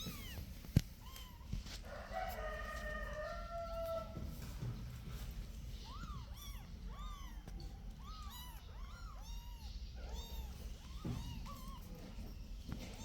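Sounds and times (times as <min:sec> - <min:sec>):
kittens mewing: 0:00.0 - 0:01.9, 0:05.7 - 0:13.0.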